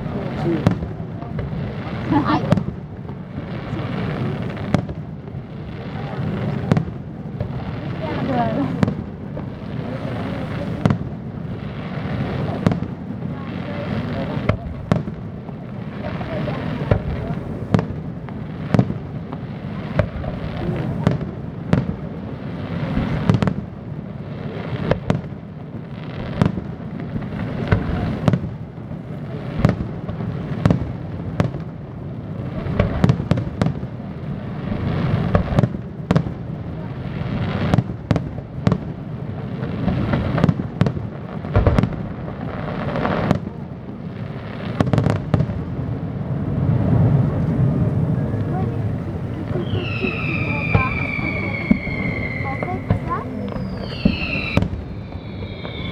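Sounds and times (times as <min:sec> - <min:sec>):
background rumble: 0:26.5 - 0:55.9.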